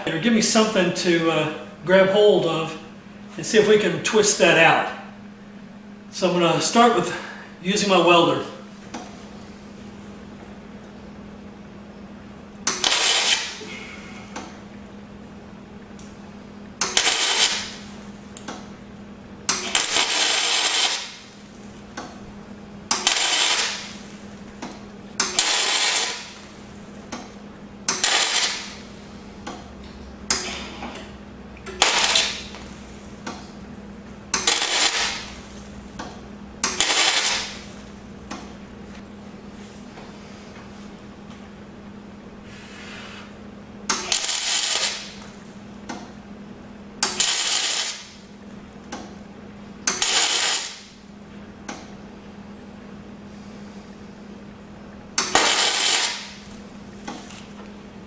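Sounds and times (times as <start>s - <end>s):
steady low hum: 0.0s - 58.0s
electric welder crackling: 12.6s - 13.6s, 16.8s - 18.7s, 19.4s - 22.1s, 22.9s - 26.8s, 27.9s - 29.6s, 31.6s - 33.6s, 34.2s - 38.4s, 43.9s - 45.5s, 47.0s - 48.3s, 49.8s - 51.0s, 55.2s - 57.5s.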